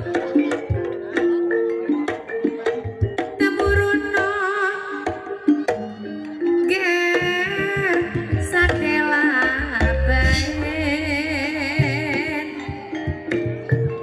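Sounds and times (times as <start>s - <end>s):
held gamelan notes: 0.0s - 14.0s
person singing with vibrato: 3.4s - 14.0s.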